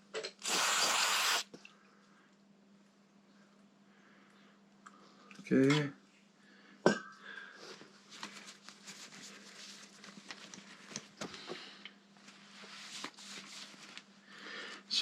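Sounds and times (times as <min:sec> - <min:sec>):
light clicks and rustles: 0:08.2 - 0:11.6.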